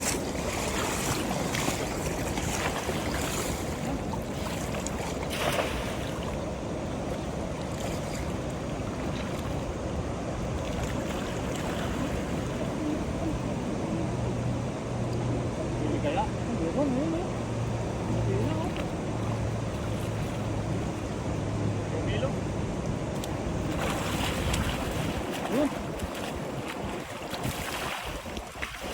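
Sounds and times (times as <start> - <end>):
low steady hum: 0.0 - 28.9
water rushing: 0.0 - 28.9
wind noise on microphone: 22.4 - 28.9.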